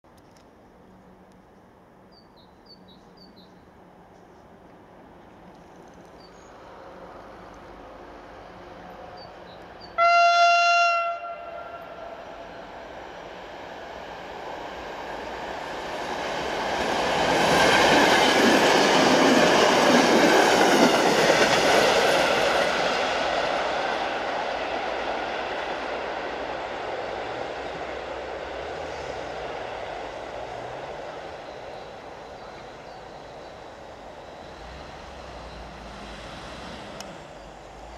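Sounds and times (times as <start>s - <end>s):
train wheels and running gear: 11.8s - 37.9s.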